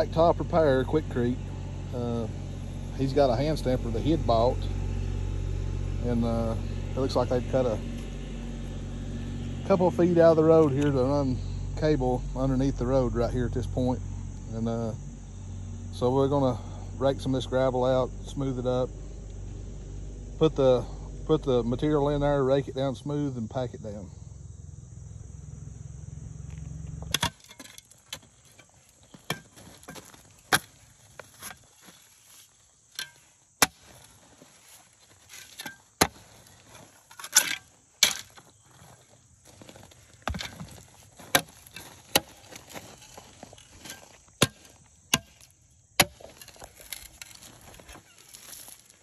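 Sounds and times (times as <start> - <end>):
hand tool knocking and scraping gravel: 6.0 - 8.1, 27.0 - 49.0.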